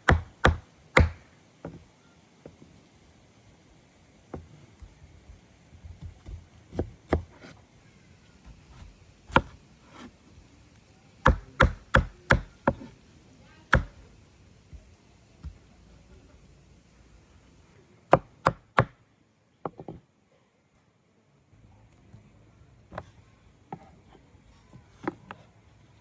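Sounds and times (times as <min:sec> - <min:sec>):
knife chopping on cutting board: 0:00.0 - 0:01.8, 0:05.9 - 0:07.6, 0:08.5 - 0:10.1, 0:11.2 - 0:13.0, 0:13.7 - 0:14.1, 0:14.7 - 0:15.6.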